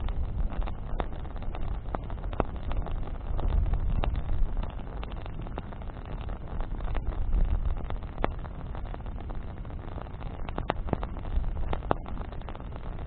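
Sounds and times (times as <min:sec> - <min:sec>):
bonfire crackling and popping: 0:00.0 - 0:13.0
fire low rushing: 0:00.0 - 0:13.0.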